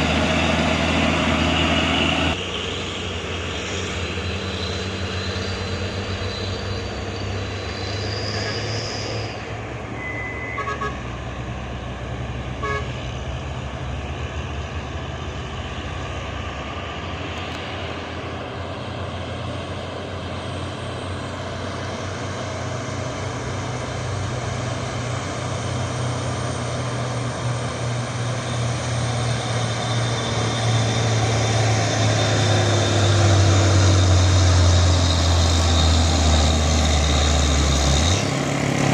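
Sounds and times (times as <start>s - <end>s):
truck diesel engine running: 0.0s - 38.9s
high horn toots: 10.0s - 11.2s, 12.6s - 13.0s.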